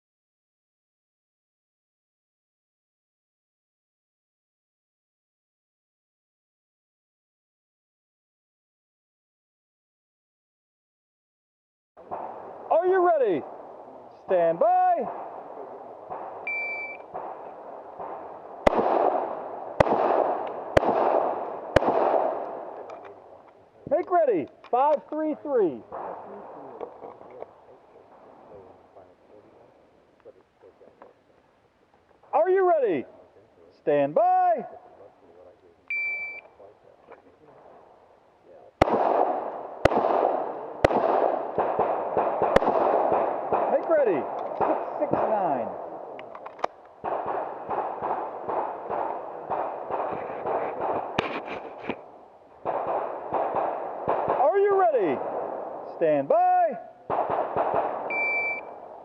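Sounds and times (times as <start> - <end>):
pistol shots with echo: 12.0 - 23.5, 24.1 - 28.7, 38.8 - 56.1, 56.9 - 59.0
echo wash: 13.4 - 23.5
shot timer beep: 16.5 - 17.0, 35.9 - 36.5, 58.1 - 58.7.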